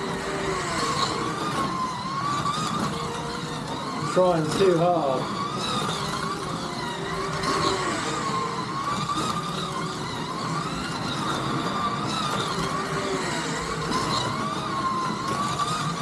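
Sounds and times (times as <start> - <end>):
slot car motors whining: 0.0 - 16.0.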